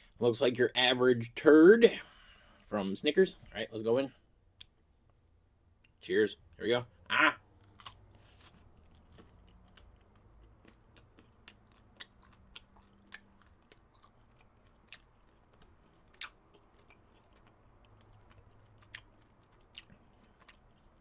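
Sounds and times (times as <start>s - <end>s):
chewing candy bar: 7.5s - 21.0s.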